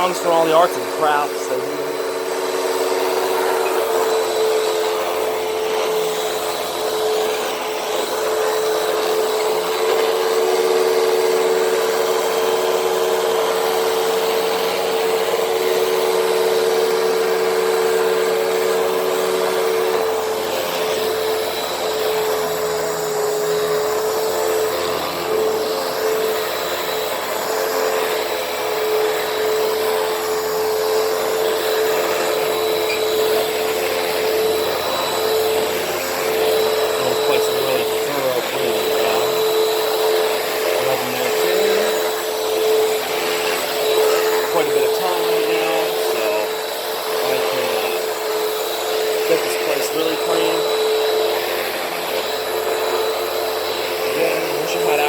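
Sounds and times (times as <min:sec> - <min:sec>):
upright vacuum running on carpet: 0:00.0 - 0:55.0.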